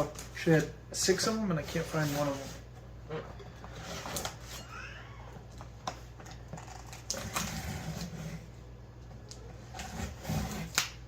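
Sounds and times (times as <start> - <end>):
knife cutting cardboard and tape: 9.7 - 11.0.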